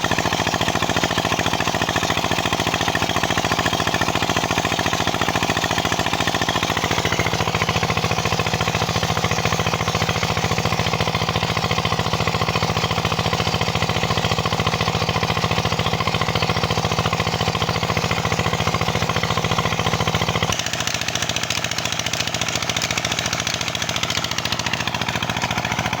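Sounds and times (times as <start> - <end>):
diesel engine knocking steadily: 0.0 - 26.0.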